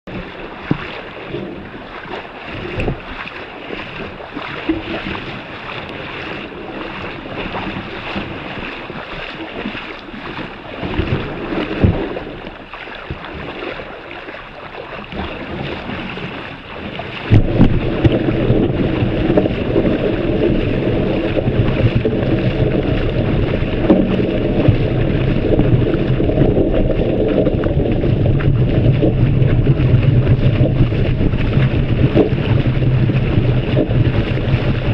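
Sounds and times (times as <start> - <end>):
feet wading through water: 0.0 - 34.9
wind noise on microphone: 0.0 - 34.9.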